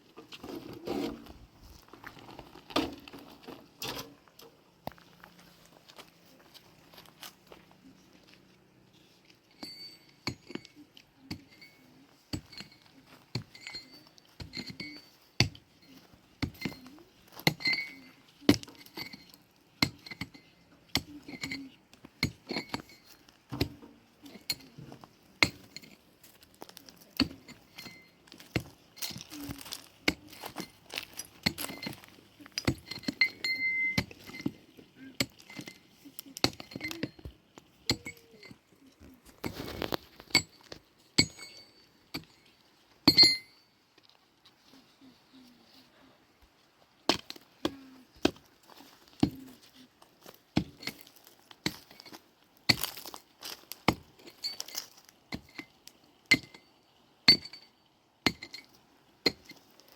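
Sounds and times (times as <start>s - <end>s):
hard objects clinking and knocking: 9.5s - 43.6s.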